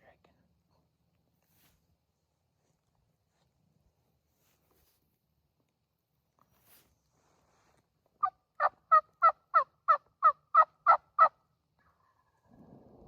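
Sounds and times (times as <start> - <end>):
turkey yelps: 8.6 - 11.4.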